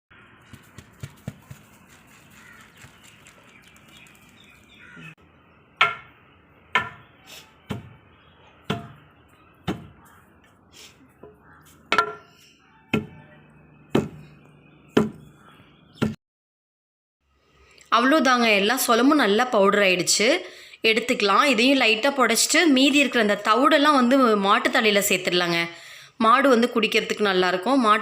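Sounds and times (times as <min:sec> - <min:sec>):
pestle pounding grain in mortar: 0:00.5 - 0:04.2.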